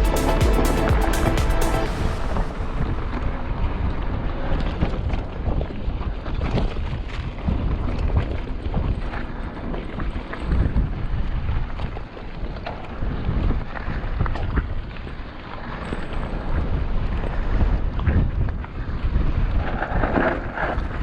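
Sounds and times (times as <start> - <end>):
wind buffeting microphone: 2.4 - 21.0.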